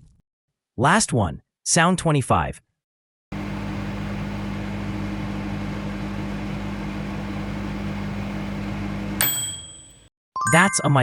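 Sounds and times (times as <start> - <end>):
microwave oven humming: 3.3 - 10.0
microwave ding: 7.0 - 10.6.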